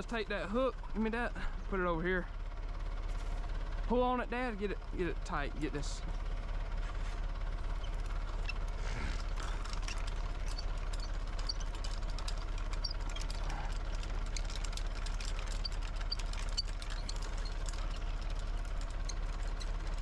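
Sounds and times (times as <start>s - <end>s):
backhoe engine idling: 0.0s - 20.0s
light engine knock: 2.4s - 20.0s.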